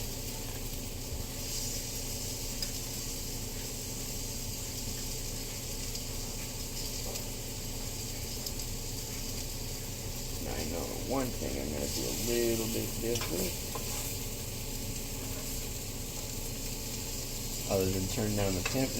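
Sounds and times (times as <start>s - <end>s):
onions sizzling in a pan: 0.0s - 18.9s.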